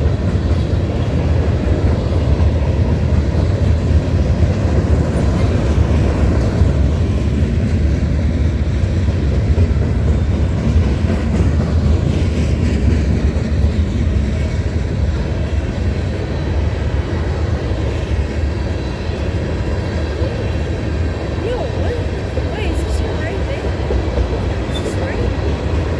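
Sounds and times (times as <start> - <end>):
train rolling past: 0.0 - 25.9.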